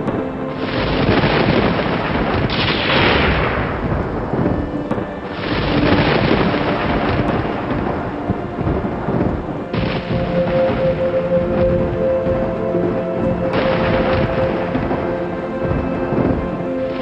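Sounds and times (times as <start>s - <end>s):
rain: 0.0s - 17.0s
soft sustained music tones: 0.0s - 17.0s
thunder rolling: 0.0s - 17.0s.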